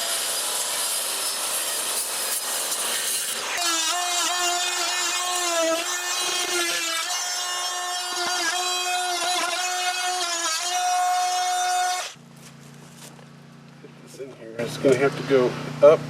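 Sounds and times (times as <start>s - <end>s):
multi-tool sawing wood: 0.0s - 12.2s.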